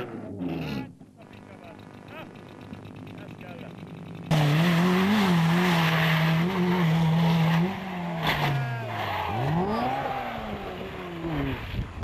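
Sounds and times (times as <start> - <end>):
rally car engine passing: 4.3 - 12.0.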